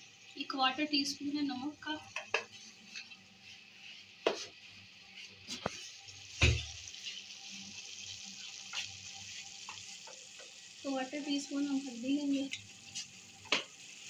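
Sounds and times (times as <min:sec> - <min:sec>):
greens sizzling in a wok: 0:00.0 - 0:14.0
spatula knocking against pan: 0:02.1 - 0:02.6.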